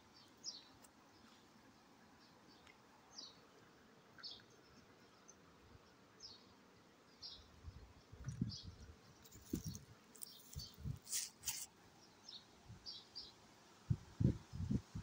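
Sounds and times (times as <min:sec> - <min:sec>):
small bird chirps: 0:07.1 - 0:13.4
brief rustles: 0:09.3 - 0:11.7.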